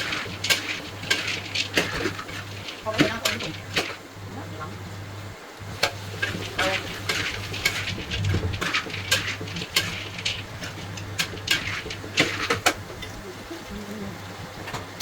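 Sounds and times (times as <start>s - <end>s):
metal spatula scraping a wok: 0.0s - 4.0s, 5.6s - 13.2s
low steady hum: 0.0s - 15.0s.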